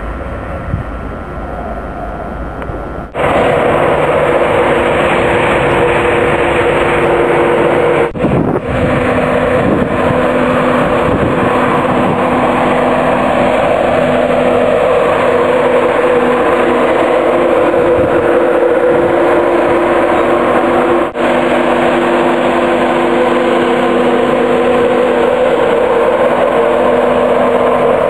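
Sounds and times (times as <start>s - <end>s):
distant train rumble: 0.0s - 28.0s
low steady hum: 0.0s - 28.0s
train wheels on rail: 0.0s - 28.0s.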